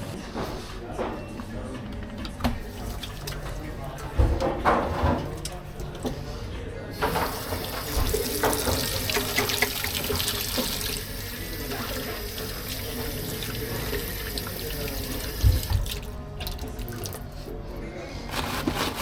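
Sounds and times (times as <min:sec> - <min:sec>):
tap water running into sink: 0:07.0 - 0:17.2.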